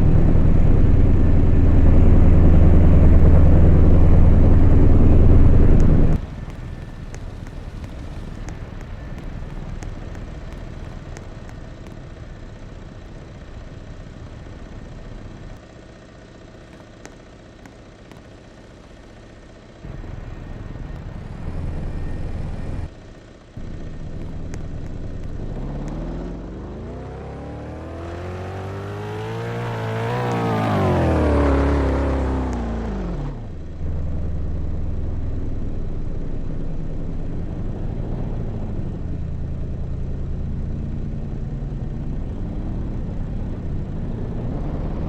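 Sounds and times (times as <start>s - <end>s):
road and wind noise: 0.0s - 45.0s
vehicle engine running: 0.0s - 45.0s
engine revving up: 23.6s - 33.6s, 41.3s - 45.0s.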